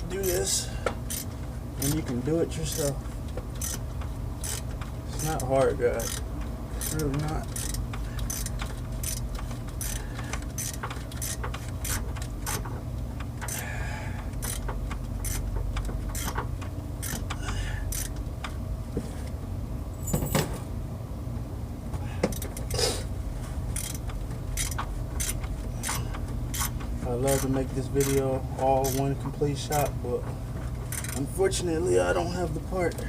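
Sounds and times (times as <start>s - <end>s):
steady low hum: 0.0s - 33.0s
metal tools clinking: 20.0s - 20.6s.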